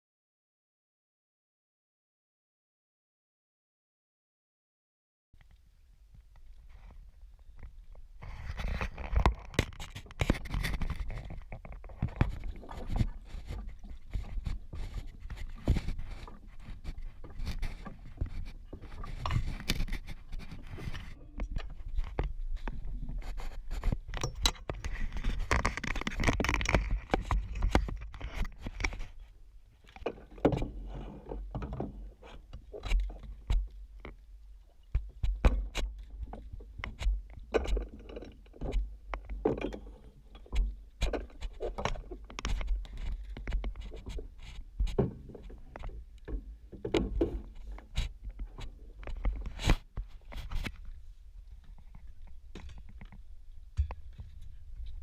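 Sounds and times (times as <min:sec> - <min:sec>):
knocks clicks and scraping: 0:08.4 - 0:29.2.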